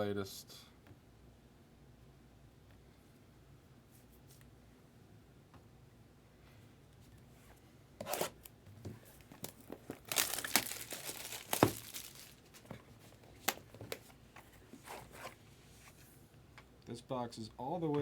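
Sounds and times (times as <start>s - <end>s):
plastic wrapping tearing and crinkling: 9.4s - 12.7s.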